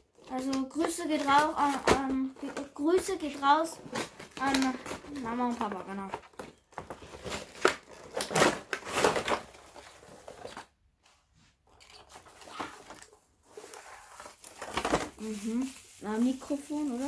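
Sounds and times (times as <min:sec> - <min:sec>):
packaging crinkling and rustling: 0:00.0 - 0:10.8, 0:11.6 - 0:17.0.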